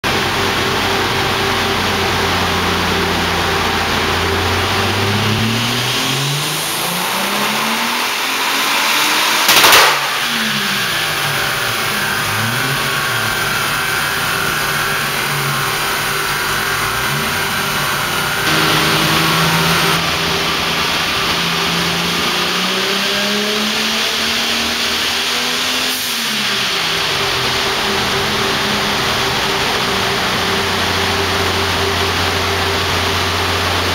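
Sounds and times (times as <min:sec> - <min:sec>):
car engine revving: 0:00.0 - 0:33.9
loud sharp bang: 0:09.4 - 0:10.6
steady hum: 0:10.8 - 0:22.2.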